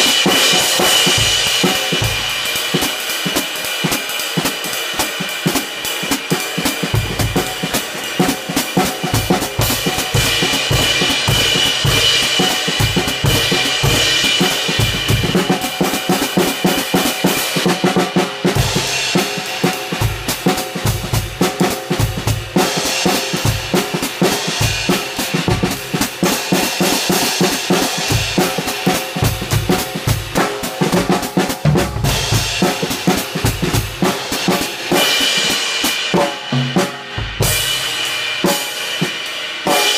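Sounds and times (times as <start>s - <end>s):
snare drum: 0.0s - 39.9s
bass drum: 29.2s - 34.2s, 36.3s - 37.9s.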